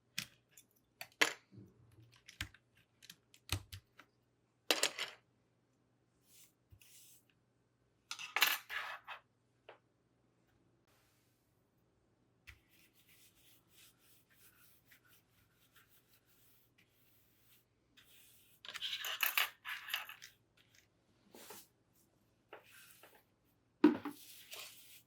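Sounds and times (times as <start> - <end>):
rubbing and scraping on keyboard: 12.5 - 21.7, 24.1 - 25.0.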